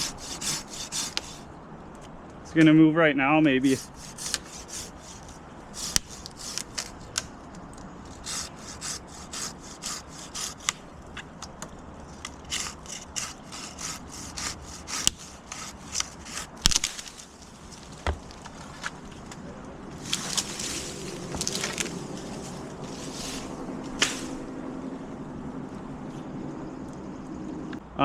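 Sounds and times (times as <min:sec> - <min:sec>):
hand saw cutting wood: 0:00.0 - 0:01.4, 0:03.6 - 0:07.0, 0:08.1 - 0:10.8, 0:12.4 - 0:16.7.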